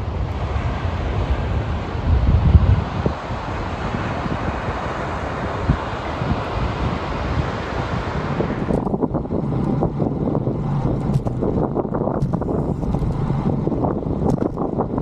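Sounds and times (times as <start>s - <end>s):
wind rumbling on microphone: 0.0s - 15.0s
scattered ticks and knocks: 10.9s - 13.3s, 14.2s - 14.7s.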